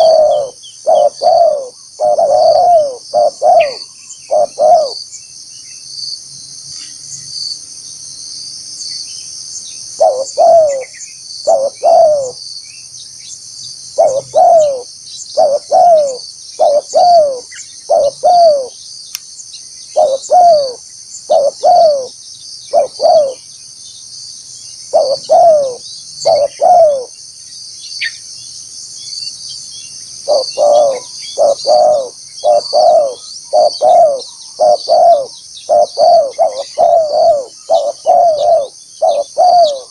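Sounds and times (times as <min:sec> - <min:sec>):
dove cooing: 0:00.0 - 0:05.0, 0:10.0 - 0:12.4, 0:14.0 - 0:18.8, 0:19.9 - 0:23.4, 0:24.9 - 0:27.2, 0:30.2 - 0:39.9
high pulsing insect buzz: 0:00.0 - 0:39.9.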